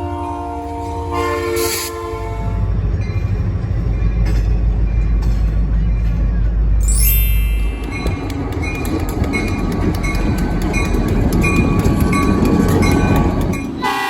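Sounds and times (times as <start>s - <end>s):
freight train rumbling past: 0.0s - 14.0s
short high ring: 6.8s - 8.2s.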